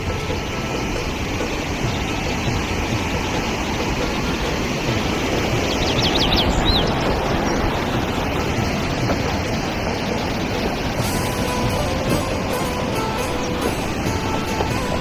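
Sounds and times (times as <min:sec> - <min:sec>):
loud rushing noise: 0:00.0 - 0:15.0
high bird chirps: 0:05.5 - 0:08.4.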